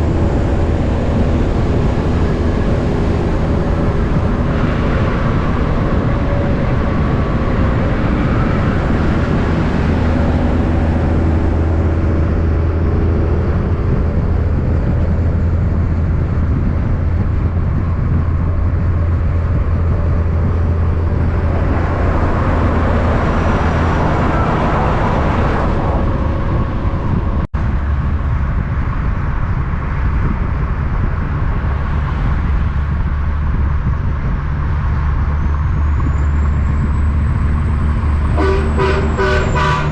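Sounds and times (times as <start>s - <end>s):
vehicle rushing past: 0.0s - 30.4s
diesel truck engine drone: 0.0s - 39.9s.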